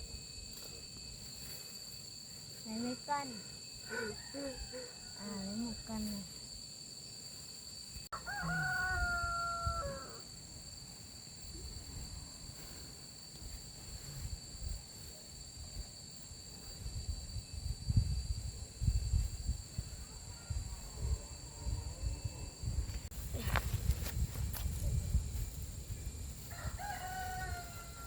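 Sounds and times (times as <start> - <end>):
insect drone: 0.0 - 28.0
rooster crowing: 3.9 - 5.3, 8.1 - 10.3, 26.4 - 28.0.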